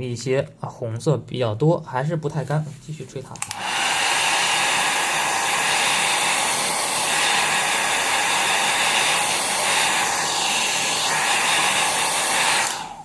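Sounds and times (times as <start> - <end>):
hair dryer running: 3.4 - 13.0.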